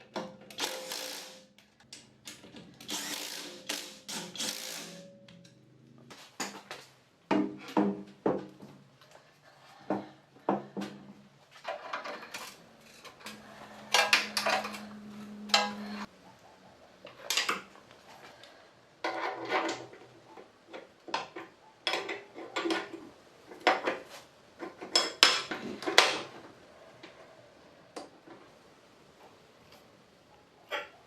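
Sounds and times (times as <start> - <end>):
metal tools clanking and scraping: 11.5 - 16.1.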